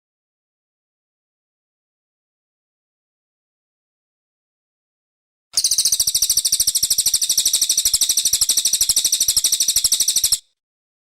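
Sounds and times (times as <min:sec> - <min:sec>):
songbird rapid trill: 0:05.6 - 0:10.6.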